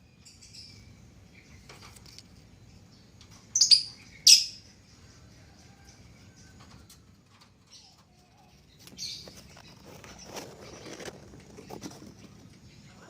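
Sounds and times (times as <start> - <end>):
birds chirping: 0.0 - 13.0
rustling: 7.3 - 13.0.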